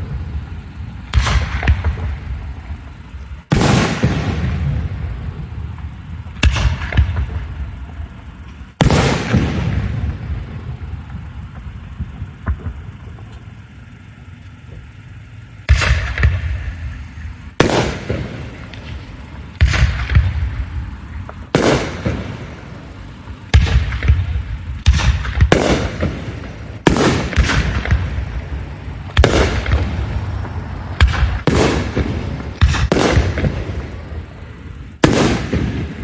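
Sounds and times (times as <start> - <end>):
firework shells bursting: 0.0 - 36.0.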